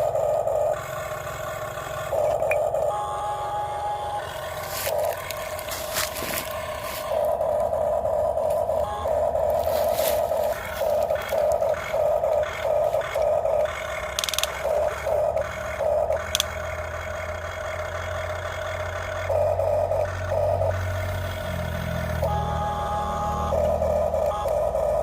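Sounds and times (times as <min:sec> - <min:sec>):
low hum: 0:00.0 - 0:25.0
pulsing mid-pitched sound: 0:00.0 - 0:25.0
toy motors whirring: 0:00.0 - 0:25.0
rattling and scraping: 0:04.4 - 0:08.8.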